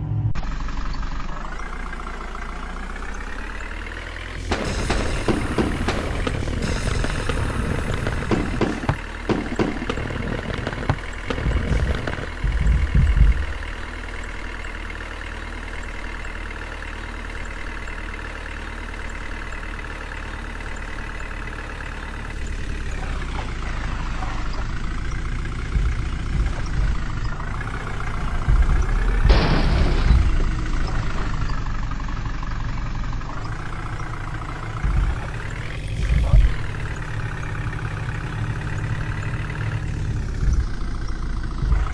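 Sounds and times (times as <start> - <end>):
tractor diesel engine running: 0.0 - 41.9
knocks and thumps: 4.4 - 13.9, 23.3 - 31.6, 33.6 - 41.9.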